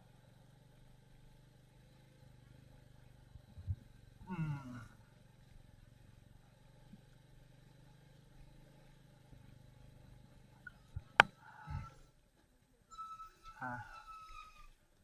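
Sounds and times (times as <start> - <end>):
motorcycle engine running at low revs: 0.0 - 11.4.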